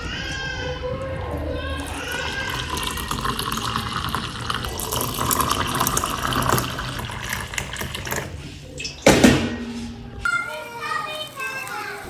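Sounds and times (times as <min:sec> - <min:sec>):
water pouring into container: 0:01.8 - 0:08.6.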